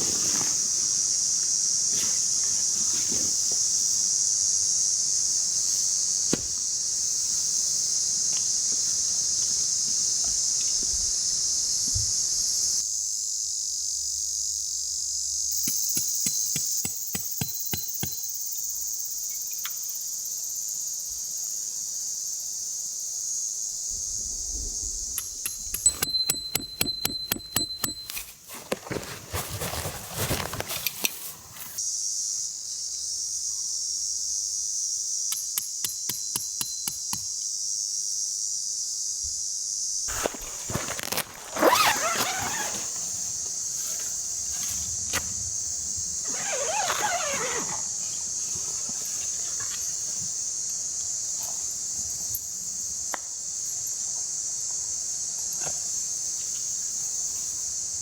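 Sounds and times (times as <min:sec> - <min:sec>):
insects chirring in grass: 0:00.0 - 0:58.0
gear handling clicks and knocks: 0:25.2 - 0:31.8.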